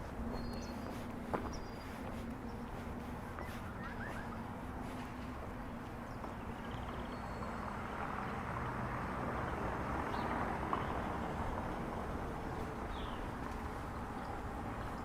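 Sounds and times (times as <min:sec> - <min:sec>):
rainy street noise: 0:07.6 - 0:15.0.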